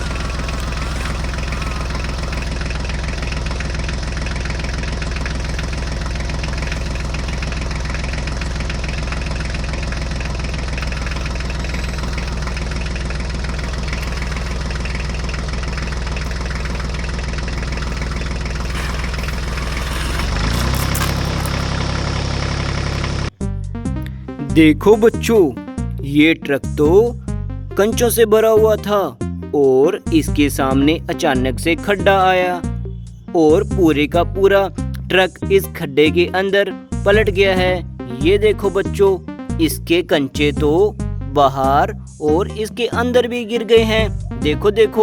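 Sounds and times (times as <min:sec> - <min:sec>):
engine idling with knocking beat: 0:00.0 - 0:24.0, 0:36.3 - 0:45.0.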